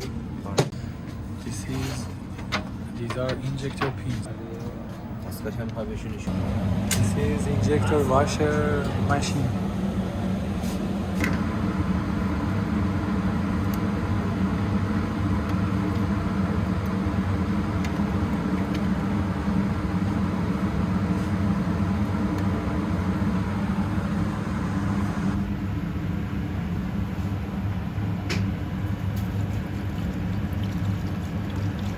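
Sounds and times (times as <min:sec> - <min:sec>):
cleaning machine humming: 0:06.3 - 0:25.4.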